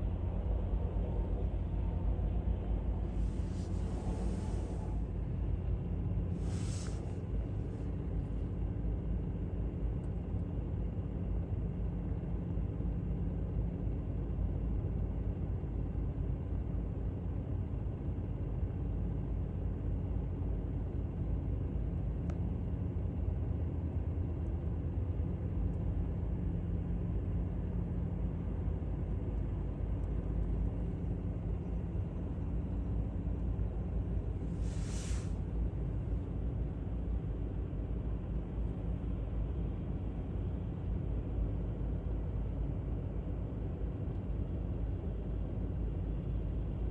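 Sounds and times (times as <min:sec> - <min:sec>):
distant engine rumble: 0:00.0 - 0:07.9, 0:30.4 - 0:38.6
faint steady hum: 0:00.0 - 0:46.9
brief rush of noise: 0:03.1 - 0:05.0, 0:06.4 - 0:07.2, 0:34.5 - 0:35.4.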